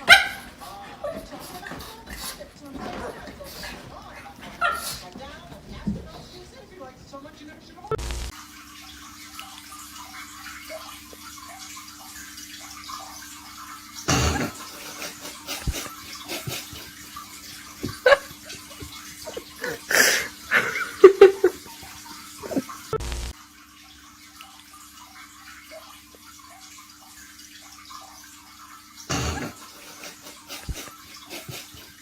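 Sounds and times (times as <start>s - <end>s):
steady low hum: 7.9s - 8.3s
water splashing: 7.9s - 32.0s.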